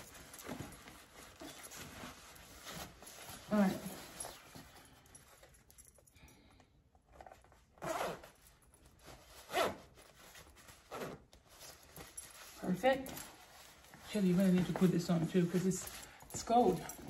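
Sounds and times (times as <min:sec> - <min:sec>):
jacket zipper zipping: 0:07.8 - 0:08.4, 0:09.4 - 0:10.0, 0:10.9 - 0:11.2.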